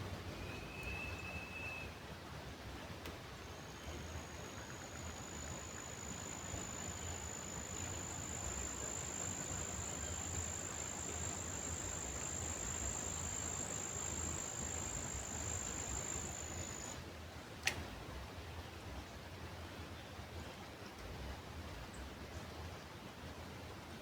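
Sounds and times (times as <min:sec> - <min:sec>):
insect trilling: 0:03.4 - 0:17.0
sharp click: 0:17.6 - 0:17.9.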